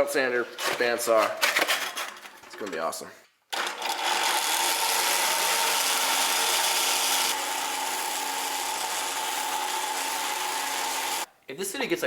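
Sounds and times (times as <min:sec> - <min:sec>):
power tool motor whine: 0:03.9 - 0:11.3.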